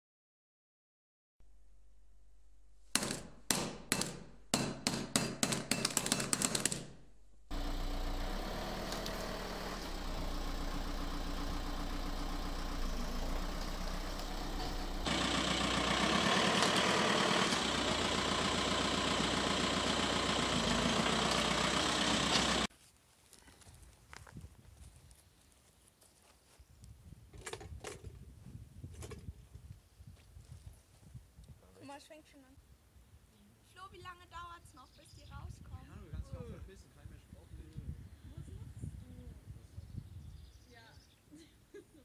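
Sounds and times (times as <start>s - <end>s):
sharp knocks: 2.9s - 7.0s
car engine idling: 7.5s - 22.7s.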